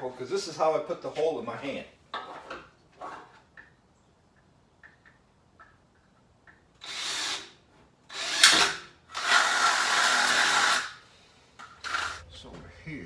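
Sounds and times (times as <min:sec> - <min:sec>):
power drill boring: 0:06.8 - 0:07.5, 0:08.1 - 0:11.0.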